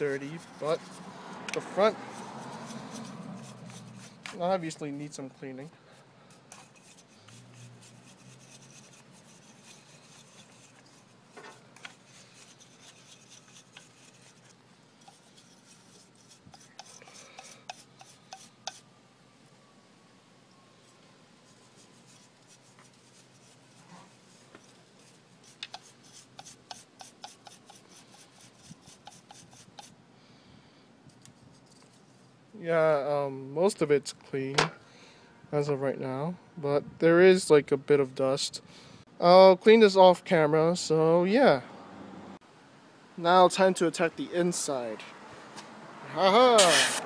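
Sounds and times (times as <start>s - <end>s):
rubbing and scratching on plastic: 0.0s - 4.8s, 6.3s - 18.8s, 21.5s - 29.9s.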